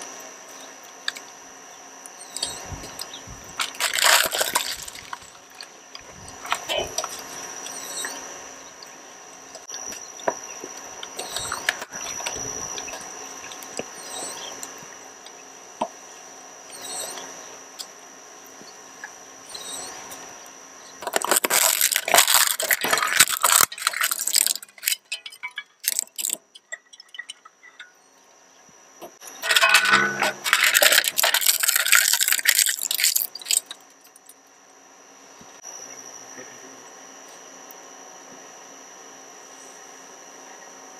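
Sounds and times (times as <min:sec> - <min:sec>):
shredder motor humming: 0:02.2 - 0:08.7, 0:19.7 - 0:25.2
plastic crackling and cracking: 0:03.5 - 0:05.6, 0:21.0 - 0:27.4, 0:29.4 - 0:33.8.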